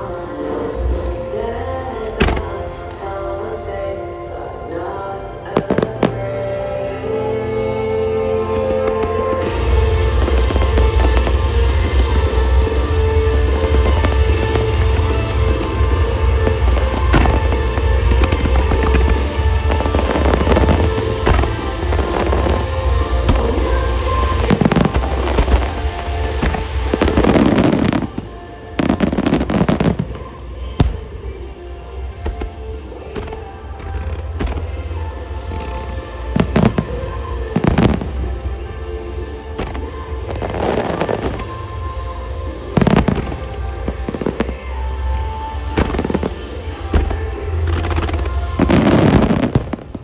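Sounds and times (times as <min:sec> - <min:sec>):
fireworks crackling bursts: 0:00.0 - 0:50.0
show music: 0:00.0 - 0:50.0
firework bang: 0:08.7 - 0:30.2, 0:30.8 - 0:31.4, 0:36.4 - 0:38.5, 0:42.8 - 0:44.6, 0:45.8 - 0:50.0.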